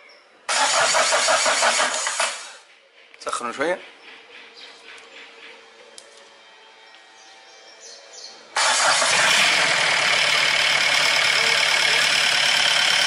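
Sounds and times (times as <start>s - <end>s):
harsh diesel engine running: 8.6s - 13.0s.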